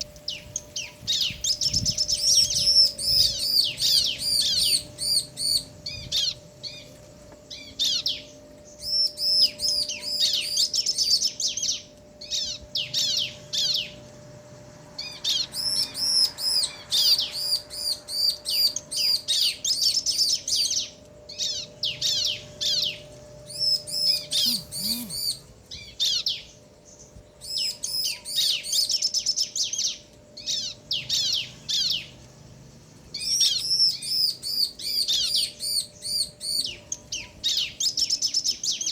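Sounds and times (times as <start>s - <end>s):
faint steady tone: 0.0s - 38.8s
birds chirping back and forth: 0.0s - 38.9s.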